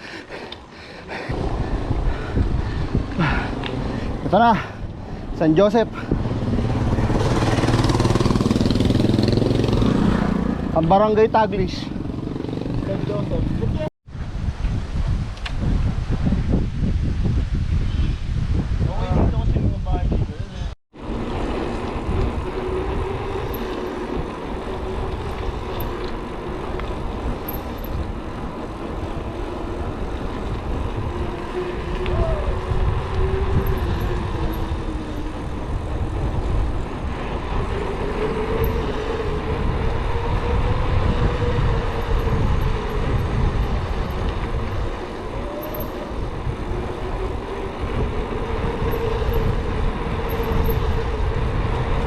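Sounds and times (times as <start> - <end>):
bike hum: 0.0 - 52.0
wind rumbling on microphone: 1.0 - 52.0.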